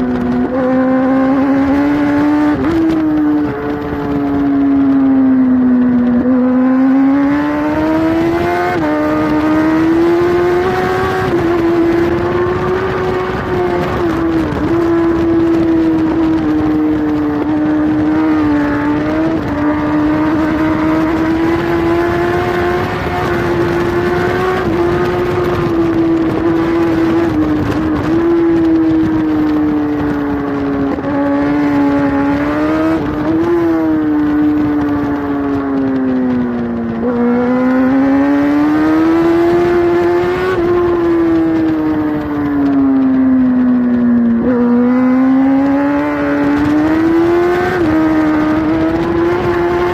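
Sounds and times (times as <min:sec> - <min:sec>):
motorcycle engine at high revs: 0:00.0 - 0:49.9
wind noise: 0:00.0 - 0:49.9.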